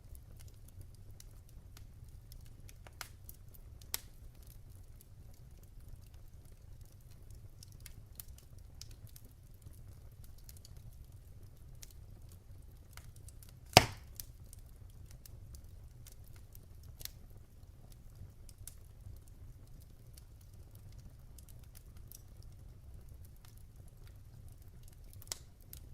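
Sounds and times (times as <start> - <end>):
wood fire crackling: 0.0 - 25.9
loud pop: 13.8 - 14.1.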